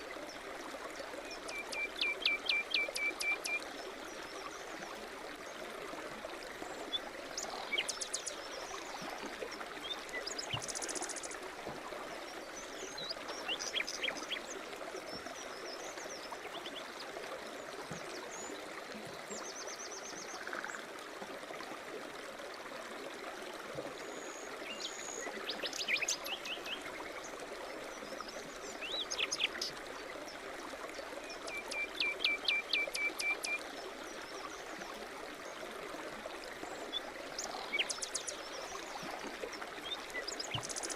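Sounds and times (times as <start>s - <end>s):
forest stream trickling: 0.0s - 40.9s.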